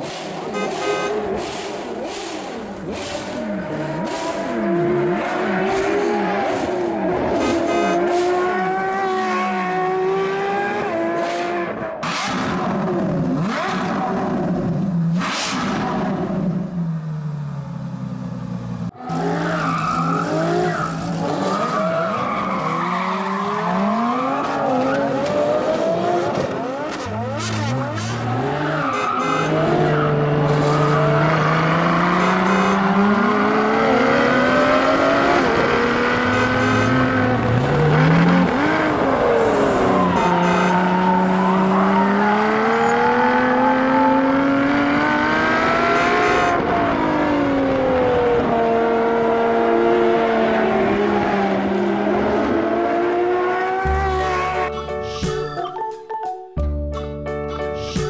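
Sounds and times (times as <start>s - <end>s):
race car engine revving: 18.4s - 54.6s.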